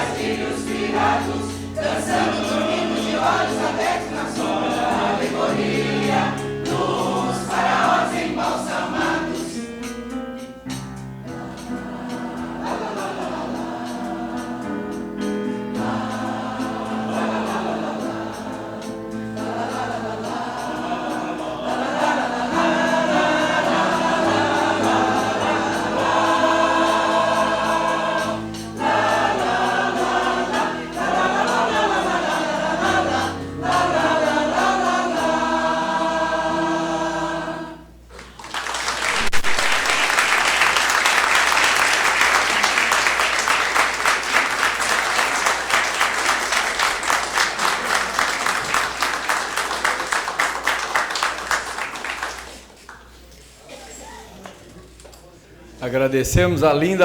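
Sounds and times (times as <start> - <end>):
choir singing: 0.0 - 10.2, 11.2 - 38.0, 39.2 - 52.5
keyboard accompaniment: 0.0 - 38.1
audience applauding: 38.1 - 53.2.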